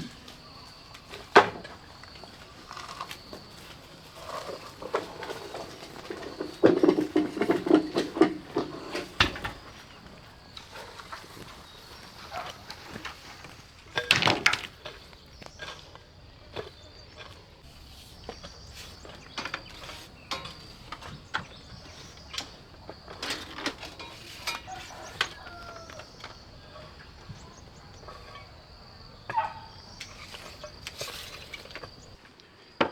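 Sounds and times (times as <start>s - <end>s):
wooden knocks and clatter: 0.0s - 17.3s, 18.1s - 32.2s.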